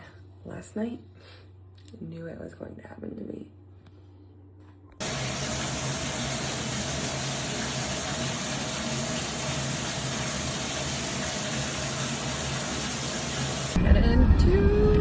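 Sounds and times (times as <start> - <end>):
shower water spraying: 5.0 - 13.8.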